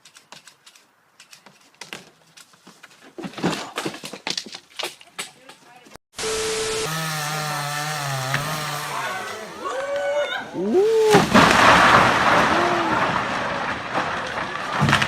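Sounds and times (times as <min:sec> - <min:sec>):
chainsaw running: 0:06.2 - 0:09.8
person shouting: 0:09.0 - 0:11.2, 0:12.5 - 0:13.1
loud rushing crash: 0:10.9 - 0:15.0.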